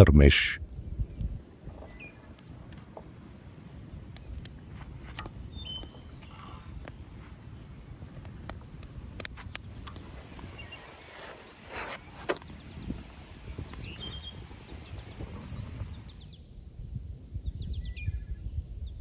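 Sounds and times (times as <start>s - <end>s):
bird chirps: 1.0s - 3.0s, 5.4s - 7.1s, 9.5s - 16.5s
faint clicks and crackles: 4.1s - 12.7s.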